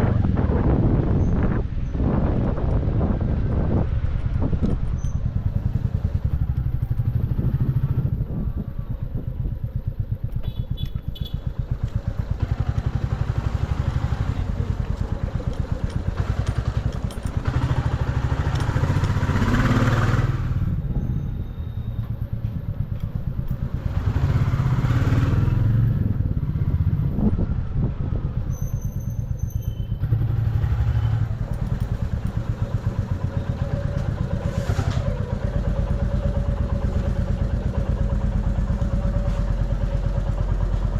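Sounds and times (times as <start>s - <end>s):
wind and road noise: 0.0s - 40.9s
motorcycle engine running: 4.0s - 40.9s.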